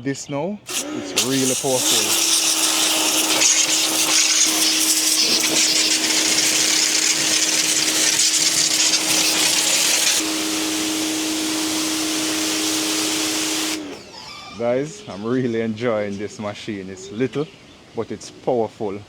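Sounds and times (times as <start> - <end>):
water jet hissing on surface: 0.7 - 14.0
pressure washer motor hum: 0.7 - 14.2.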